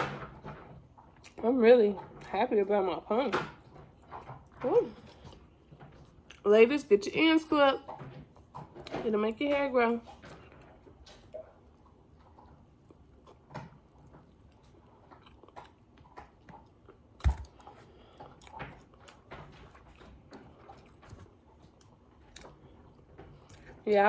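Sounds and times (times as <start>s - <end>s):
chewing and biting food: 10.1s - 24.0s.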